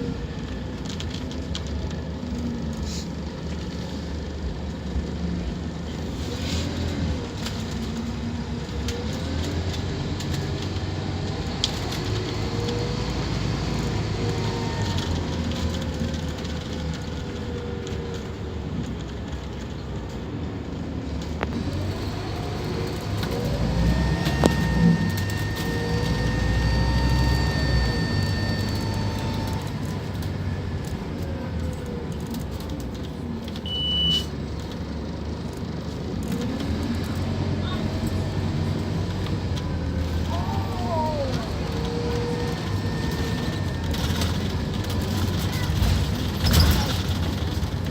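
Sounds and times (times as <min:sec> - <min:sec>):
bus diesel engine droning: 0:00.0 - 0:47.9
short high beep: 0:24.2 - 0:29.7, 0:33.6 - 0:34.3.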